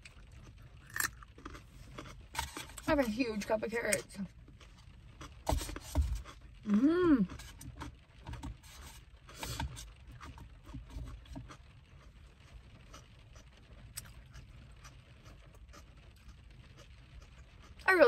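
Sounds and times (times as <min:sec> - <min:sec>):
carrots being bitten and chewed: 0:00.0 - 0:02.6, 0:10.2 - 0:17.9.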